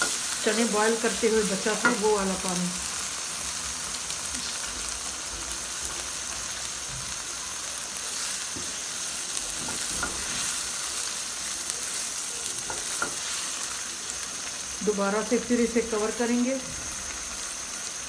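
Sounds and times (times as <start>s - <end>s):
food sizzling in a pan: 0.0s - 18.0s
spatula scraping a pan: 9.5s - 10.8s.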